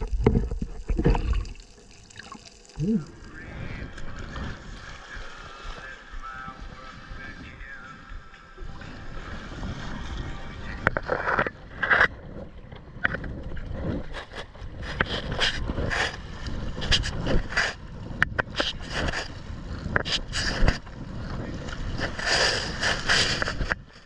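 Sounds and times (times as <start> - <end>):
water splashing around kayak: 0.0 - 24.0
wind rumble on microphone: 2.8 - 24.0.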